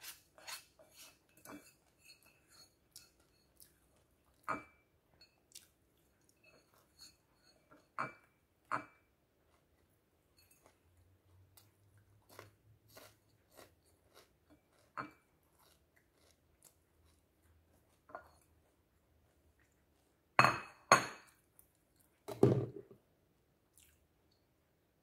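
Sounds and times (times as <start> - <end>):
crunchy chewing of crisps: 10.6 - 20.1.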